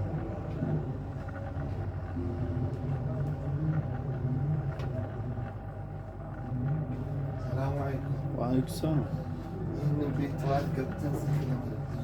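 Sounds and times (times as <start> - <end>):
low rumble with hum: 0.0 - 8.3.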